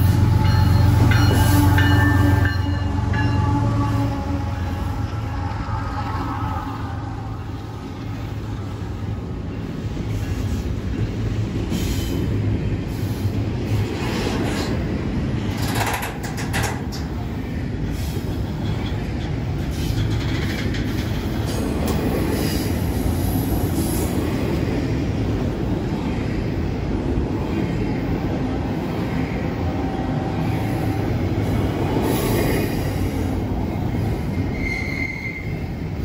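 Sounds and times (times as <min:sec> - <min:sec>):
train wheels rumbling on rail: 0:00.0 - 0:36.0
metallic wheel clanks and screeches: 0:34.3 - 0:35.6.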